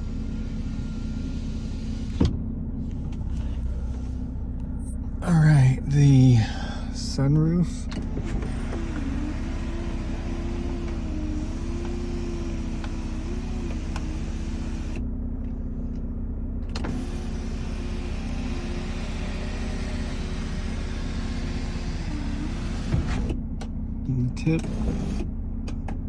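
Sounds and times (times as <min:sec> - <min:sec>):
electric sunroof motor whining: 0:00.0 - 0:04.1, 0:07.9 - 0:15.1, 0:16.6 - 0:23.6, 0:24.4 - 0:25.9
car engine idling: 0:00.0 - 0:26.0.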